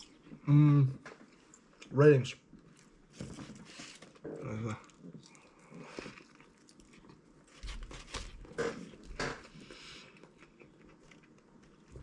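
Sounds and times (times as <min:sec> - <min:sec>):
chewing noises: 0:04.4 - 0:08.2.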